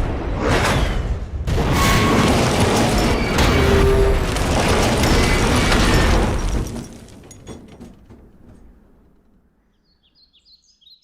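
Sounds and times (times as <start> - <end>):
explosion booming and rumbling: 0.0 - 7.4
falling debris clattering: 1.5 - 9.4.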